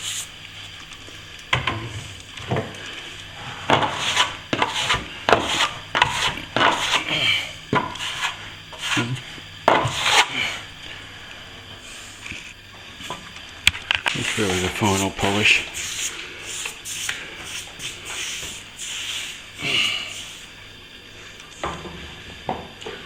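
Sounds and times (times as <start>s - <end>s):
hand tool scraping plaster: 3.4s - 10.6s.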